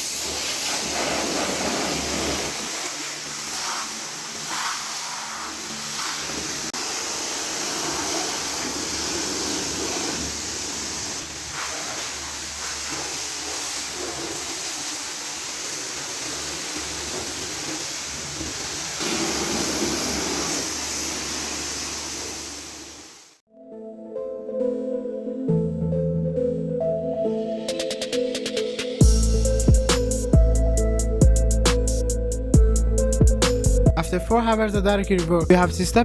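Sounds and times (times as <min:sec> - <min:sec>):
car-cleaning machine hissing rush: 0:00.0 - 0:23.4.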